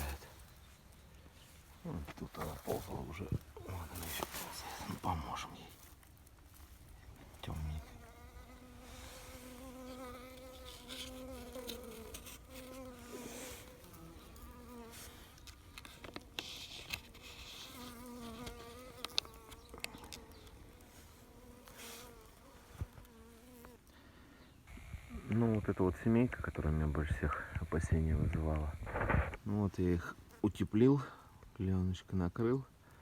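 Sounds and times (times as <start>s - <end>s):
honeybees buzzing: 7.4s - 23.8s.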